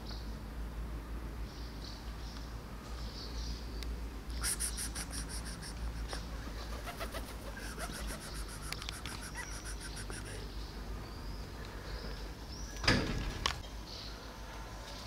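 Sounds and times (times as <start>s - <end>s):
bird chirping: 1.4s - 12.9s.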